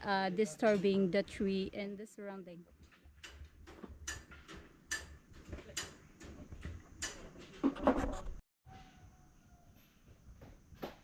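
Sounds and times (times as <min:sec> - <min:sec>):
footsteps on wooden boards: 0:02.8 - 0:08.2.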